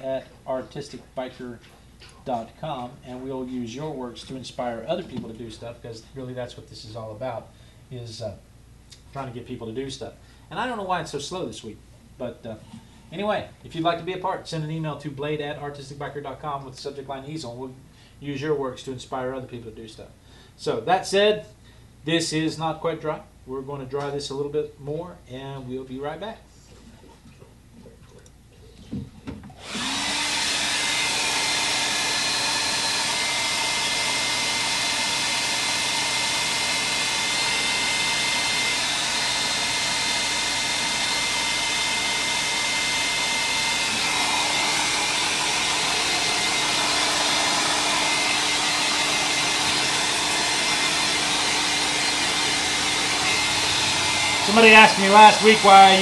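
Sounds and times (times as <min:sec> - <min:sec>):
hair dryer blowing: 0:29.5 - 0:56.0.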